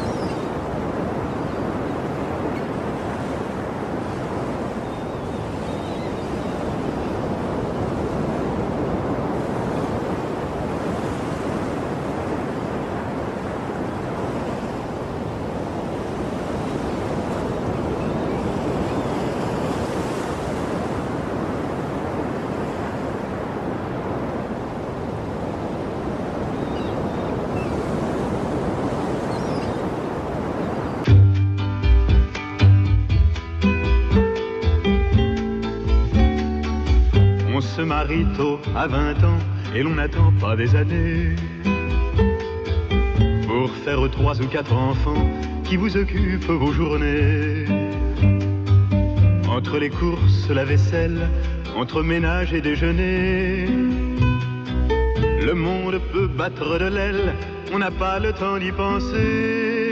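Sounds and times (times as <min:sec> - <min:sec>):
waves breaking on rocks: 0:00.0 - 0:31.1.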